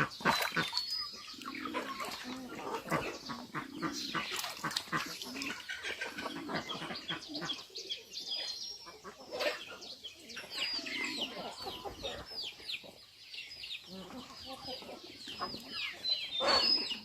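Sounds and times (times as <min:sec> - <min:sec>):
poultry calls: 0:00.0 - 0:07.8, 0:13.9 - 0:17.0
birds chirping: 0:00.0 - 0:17.0.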